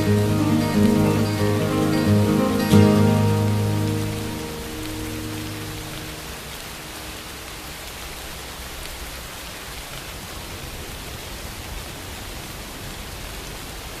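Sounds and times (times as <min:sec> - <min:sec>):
music: 0:00.0 - 0:06.8
rain hissing: 0:00.0 - 0:10.5.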